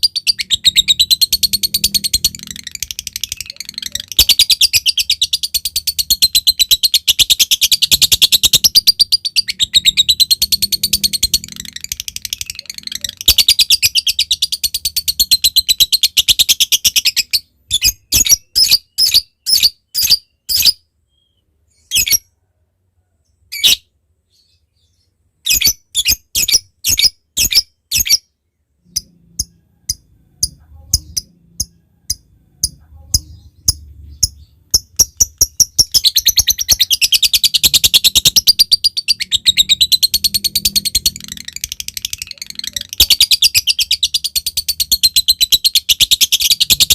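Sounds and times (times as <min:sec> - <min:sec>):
lovebird chattering trill: 0:00.0 - 0:20.8, 0:28.9 - 0:46.9
lovebird ticking chirps: 0:28.9 - 0:46.9.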